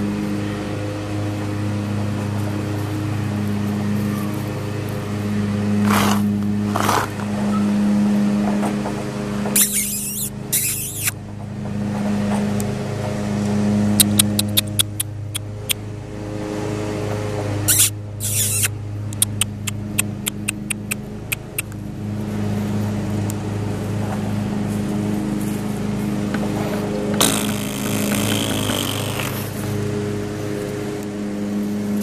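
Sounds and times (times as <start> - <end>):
vehicle engine idling: 0.0 - 32.0
paws on loose gravel: 5.8 - 7.7, 22.3 - 27.2.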